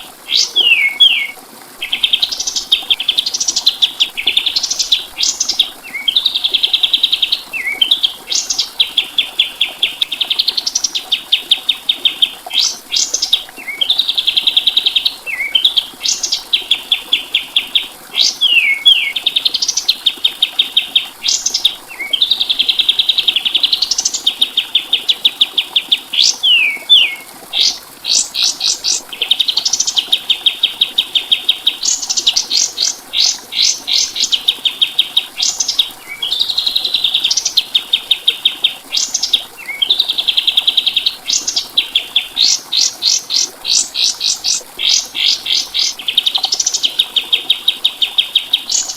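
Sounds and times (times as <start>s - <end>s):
songbird trills and whistles: 0.3s - 2.5s, 18.2s - 19.8s, 26.3s - 28.8s.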